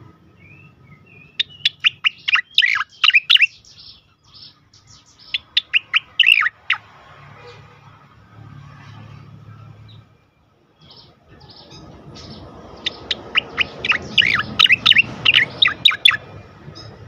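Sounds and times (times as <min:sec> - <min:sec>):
bulbul calling: 0:00.4 - 0:06.9, 0:10.8 - 0:17.0.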